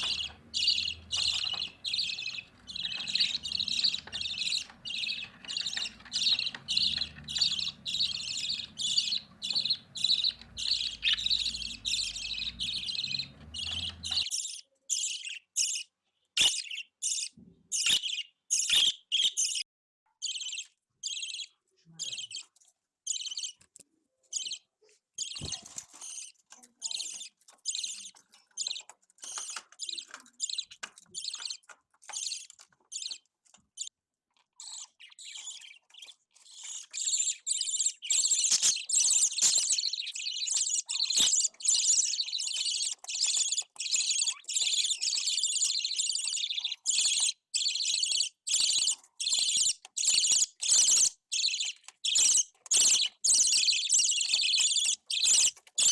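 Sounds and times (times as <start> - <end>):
budgerigars chirping: 0.0 - 15.8, 16.4 - 19.6, 20.2 - 22.5, 34.6 - 55.9.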